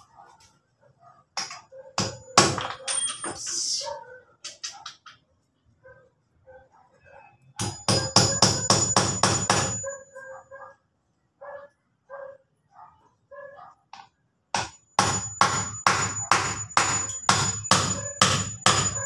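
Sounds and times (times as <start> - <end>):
hammer driving nail into wood: 7.6 - 9.8, 14.6 - 19.0.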